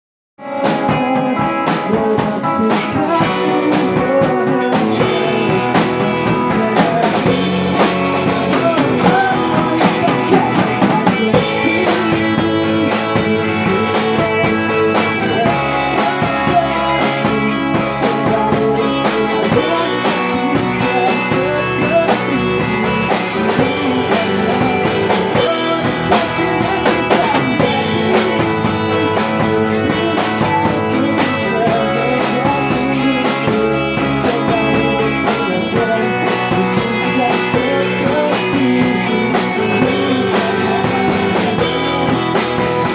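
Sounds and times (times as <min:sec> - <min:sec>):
drums striking: 0:00.4 - 0:42.9
pop-rock band music: 0:00.4 - 0:42.9.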